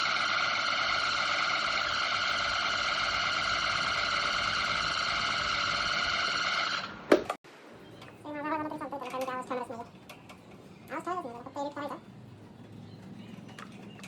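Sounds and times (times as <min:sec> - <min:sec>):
table fan with squealing bearing: 0:00.0 - 0:07.1.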